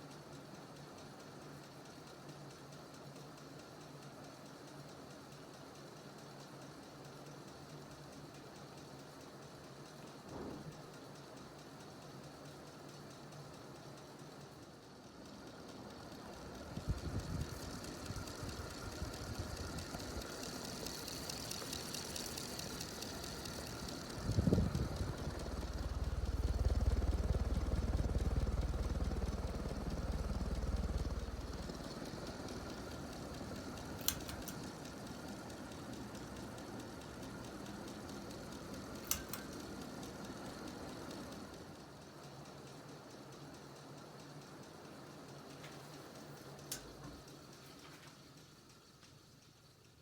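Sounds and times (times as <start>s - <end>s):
thump: 10.3s - 10.7s
ceiling fan motor grinding: 15.1s - 48.9s
sharp clicks: 30.5s - 35.0s, 37.4s - 39.9s.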